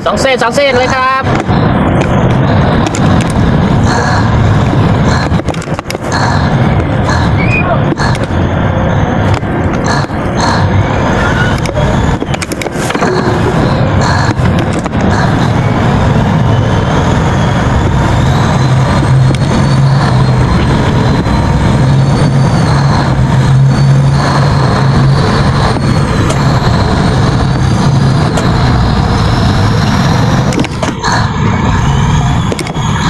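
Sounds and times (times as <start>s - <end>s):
diesel engines running: 0.0s - 33.0s
faint high whine: 0.0s - 33.0s.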